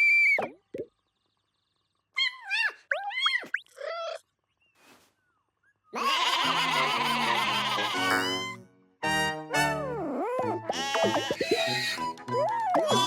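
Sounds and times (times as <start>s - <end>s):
cartoon cat wavering calls: 2.2s - 4.2s, 6.0s - 8.6s, 10.7s - 12.0s
music: 7.0s - 13.0s.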